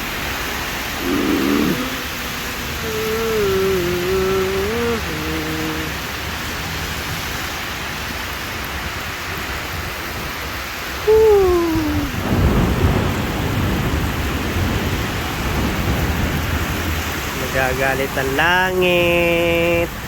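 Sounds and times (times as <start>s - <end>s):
heavy rain falling: 0.0s - 20.0s
rumble of thunder: 11.8s - 18.4s.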